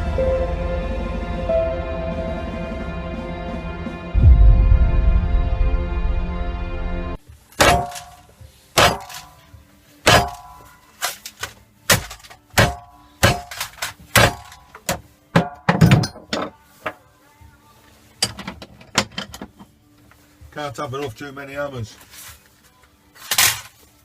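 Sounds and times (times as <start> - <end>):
intro music: 0.0 - 7.2
hammer striking steel: 7.6 - 9.4, 10.0 - 10.8, 11.9 - 16.3.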